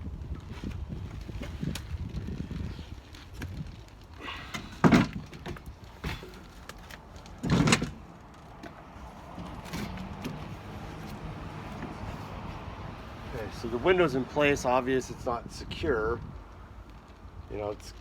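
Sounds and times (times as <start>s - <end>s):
window frame scraping bump: 7.4s - 12.2s.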